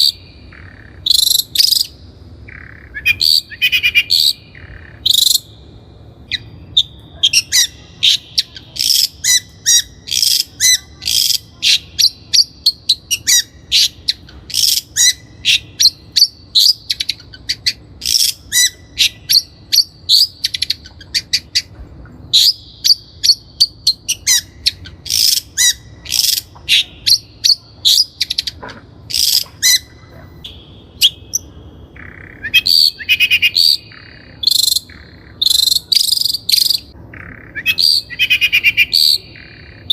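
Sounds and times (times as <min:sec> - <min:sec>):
bird singing high sharp notes: 0:29.1 - 0:39.9.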